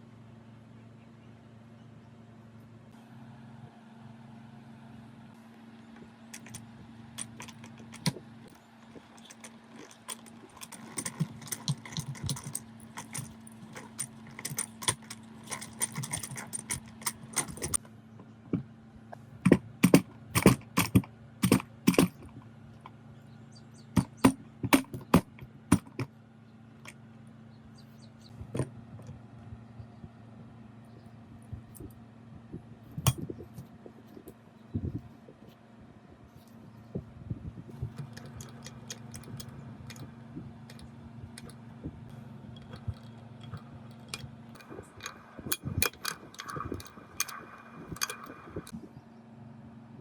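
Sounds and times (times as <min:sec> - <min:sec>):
steady low hum: 0:00.0 - 0:50.0
metal tools clinking: 0:06.3 - 0:06.6, 0:07.2 - 0:17.8, 0:19.5 - 0:22.4, 0:24.0 - 0:26.1, 0:37.7 - 0:41.6, 0:42.5 - 0:48.7.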